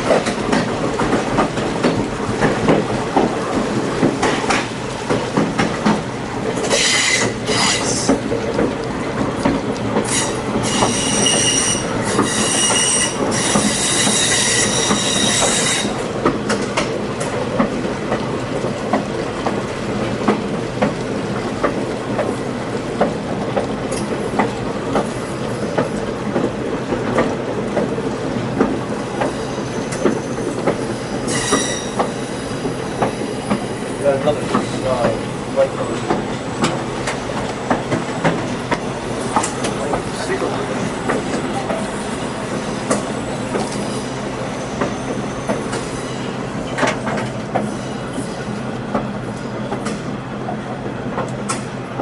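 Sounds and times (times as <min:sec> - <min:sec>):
train rumbling on rails: 0:00.0 - 0:52.0
steel wheels squealing: 0:06.7 - 0:08.1, 0:10.1 - 0:16.0, 0:29.4 - 0:36.1.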